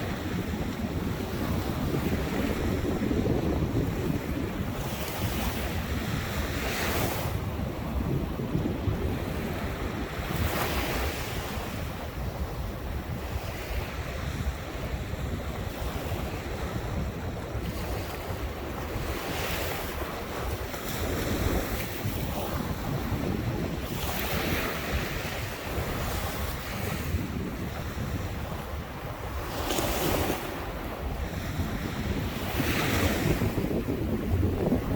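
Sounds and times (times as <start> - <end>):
waves breaking on shore: 0.0 - 34.9
wind buffeting microphone: 0.0 - 34.9.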